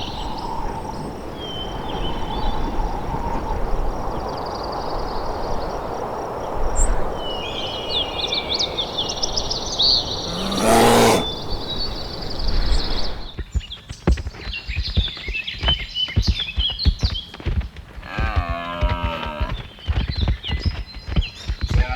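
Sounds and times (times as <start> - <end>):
small birds chirping: 0.0 - 13.4
loud breathy noise: 7.0 - 13.4.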